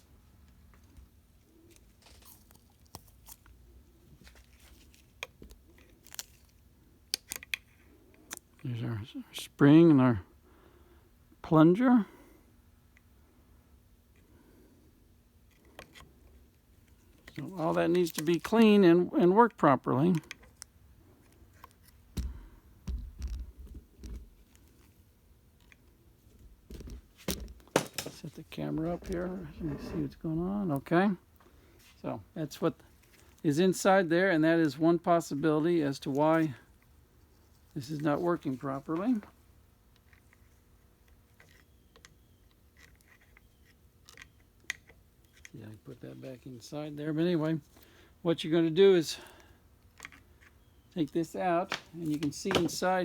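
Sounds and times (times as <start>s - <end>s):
handling bumps and clicks: 21.7s - 24.7s, 25.6s - 30.0s, 51.6s - 53.0s.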